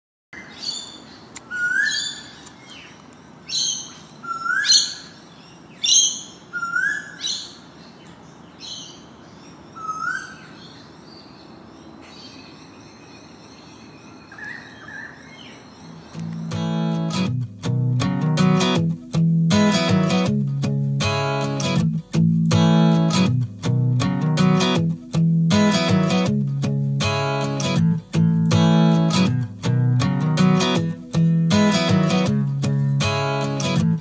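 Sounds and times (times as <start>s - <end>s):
faint outdoor background: 0.3s - 34.0s
birds calling: 0.4s - 20.4s
guitar music: 16.0s - 34.0s.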